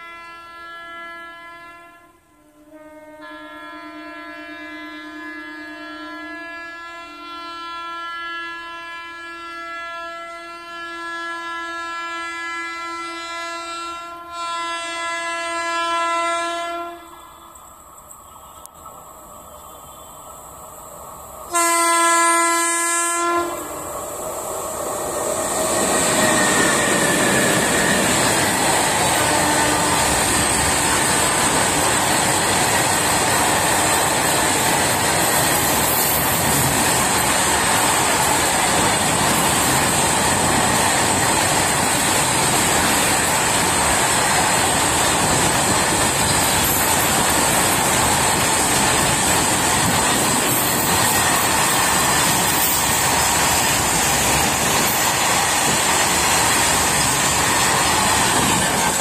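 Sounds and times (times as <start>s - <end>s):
locomotive horn blast: 0.0s - 17.6s, 21.5s - 23.7s, 29.0s - 30.3s
freight wagon wheels on rail: 9.5s - 59.0s.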